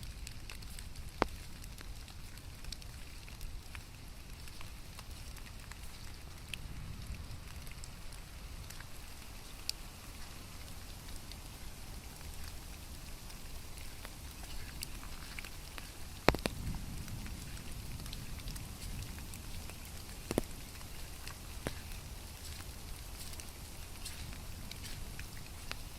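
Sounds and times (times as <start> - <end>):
steady rain: 0.0 - 25.9
drops ticking on surfaces: 14.4 - 17.4, 18.1 - 25.9.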